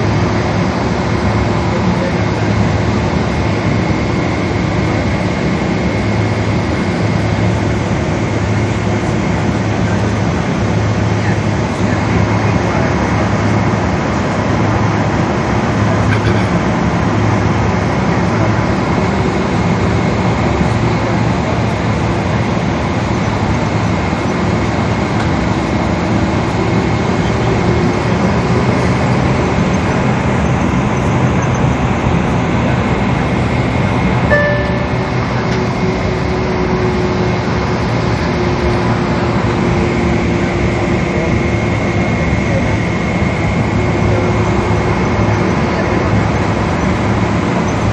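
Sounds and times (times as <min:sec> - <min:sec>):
airliner cabin roar: 0:00.0 - 0:47.9
short beep: 0:34.3 - 0:35.5, 0:46.4 - 0:47.9.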